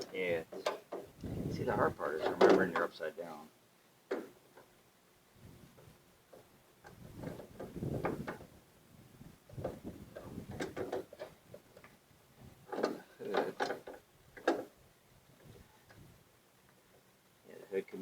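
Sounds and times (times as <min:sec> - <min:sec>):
plastic parts knocking and rattling: 0:02.2 - 0:02.9, 0:04.1 - 0:04.7, 0:09.5 - 0:11.9, 0:12.7 - 0:14.7.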